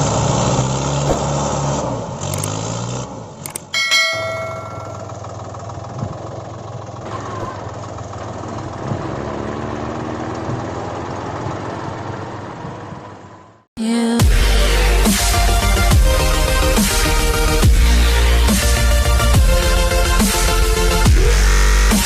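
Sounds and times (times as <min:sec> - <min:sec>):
engine idling: 0:03.4 - 0:08.9
metallic clang: 0:03.6 - 0:05.3.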